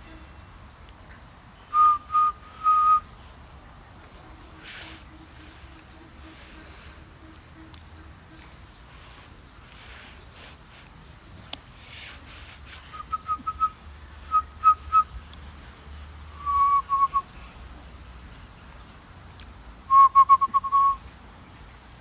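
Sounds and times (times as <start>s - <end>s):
person whistling staccato notes: 1.8s - 3.0s, 4.6s - 7.0s, 8.9s - 10.9s
breathy hissing: 4.5s - 7.1s, 8.8s - 11.0s, 11.7s - 13.1s.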